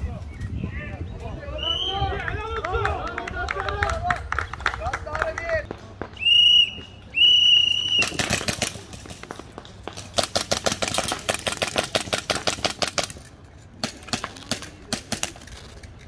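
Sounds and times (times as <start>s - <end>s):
shrill whistle blast: 6.2s - 8.2s.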